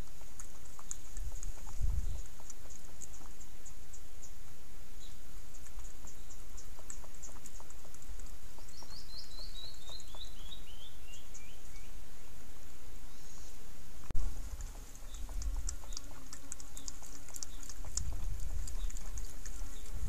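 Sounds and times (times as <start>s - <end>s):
steady hiss: 10.9s - 18.6s.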